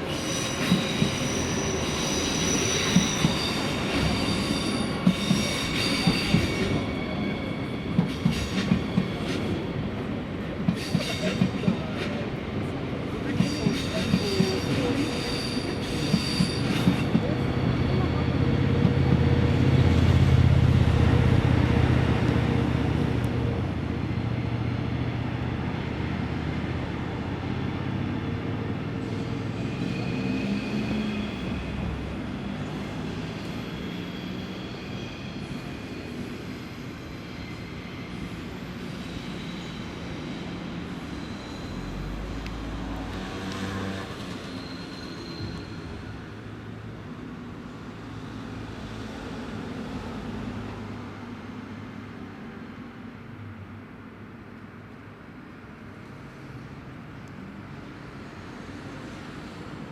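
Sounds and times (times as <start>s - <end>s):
low train rumble: 0.0s - 59.9s
faint wheel squeal: 0.1s - 9.6s, 33.0s - 43.0s, 43.6s - 46.4s.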